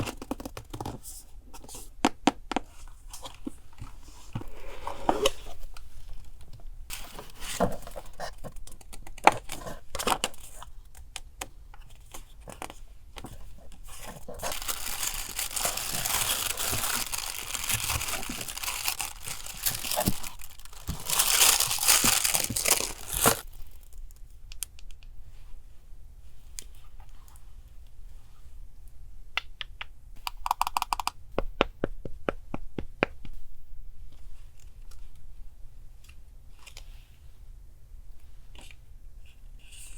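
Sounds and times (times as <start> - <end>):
paper crinkling and tearing: 14.1 - 24.0.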